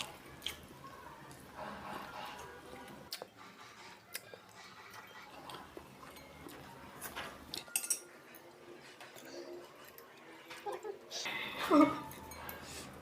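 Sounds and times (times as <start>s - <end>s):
cutlery clinking on plates: 3.2s - 10.1s.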